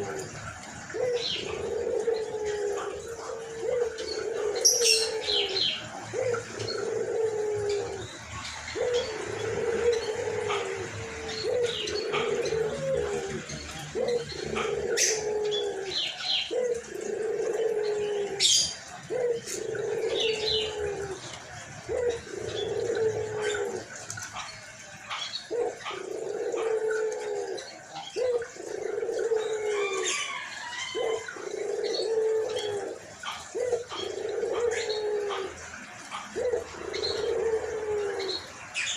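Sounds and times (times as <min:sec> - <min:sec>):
dove cooing hoarsely: 0:00.0 - 0:24.5, 0:25.2 - 0:38.9
small birds chirping: 0:00.0 - 0:38.9.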